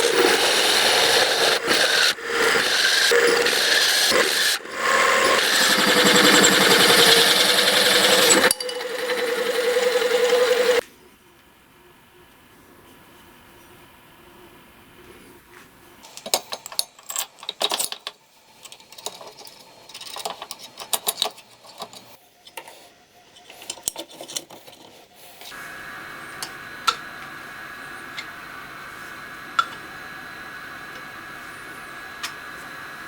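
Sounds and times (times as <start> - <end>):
high-toned hum: 1.6 - 10.8.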